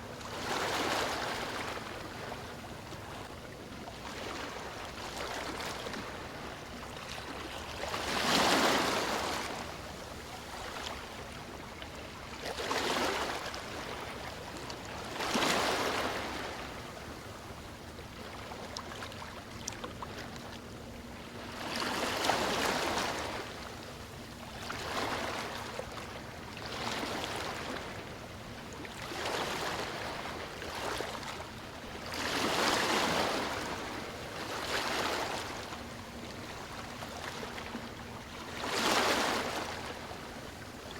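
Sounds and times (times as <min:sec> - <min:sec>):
sea waves breaking on beach: 0:07.2 - 0:09.7, 0:32.1 - 0:35.6, 0:38.5 - 0:40.7.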